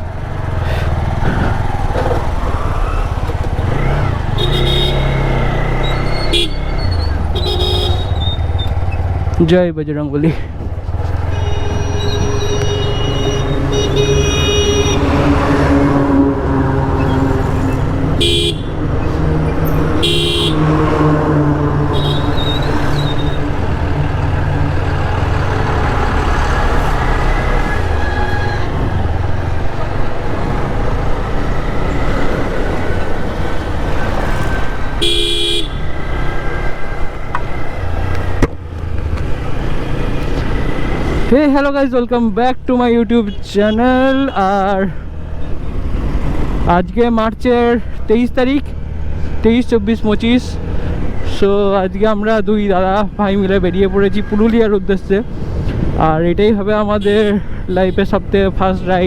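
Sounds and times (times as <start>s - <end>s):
motorcycle engine riding: 0.0s - 41.7s
road noise: 0.0s - 59.0s
vehicle horn blasts: 4.4s - 5.4s, 6.1s - 8.5s, 11.2s - 17.2s, 18.1s - 18.8s, 19.9s - 23.6s, 34.3s - 36.1s, 57.0s - 57.4s.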